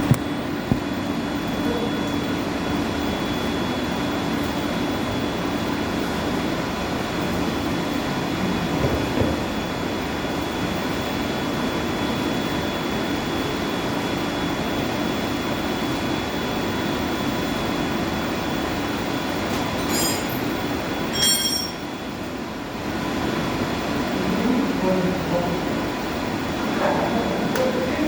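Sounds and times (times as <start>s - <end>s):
machinery running noise: 0.0s - 28.0s
thin constant whine: 0.0s - 28.0s
metallic clinks: 19.8s - 21.9s.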